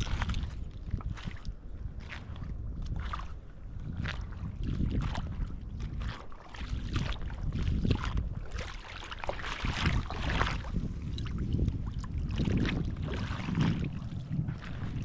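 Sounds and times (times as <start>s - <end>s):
wind buffeting microphone: 0.0s - 15.0s
surf washing: 8.0s - 15.0s.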